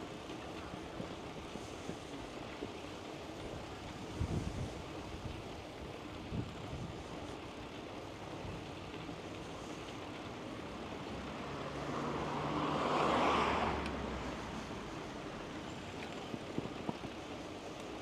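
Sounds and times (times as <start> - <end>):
steady background noise: 0.0 - 18.0
vehicle passing by: 11.0 - 15.6.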